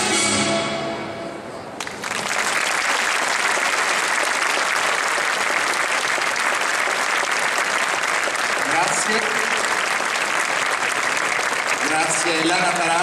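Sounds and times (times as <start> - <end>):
orchestral waltz music: 0.0 - 1.7
audience applause: 1.8 - 13.0.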